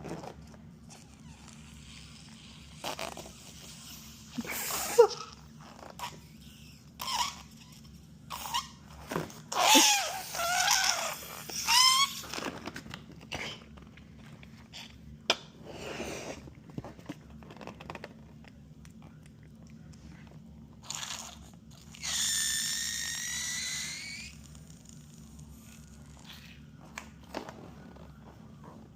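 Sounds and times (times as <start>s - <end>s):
rubber balloon squeaking: 0.0s - 12.8s, 20.8s - 26.6s.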